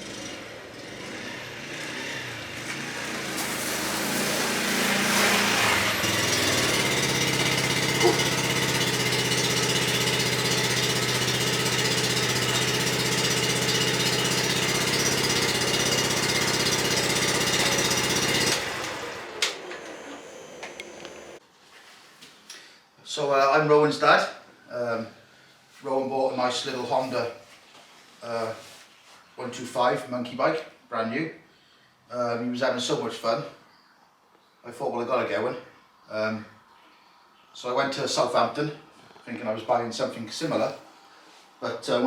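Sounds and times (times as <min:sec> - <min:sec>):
small motorbike engine running: 0:00.0 - 0:21.4.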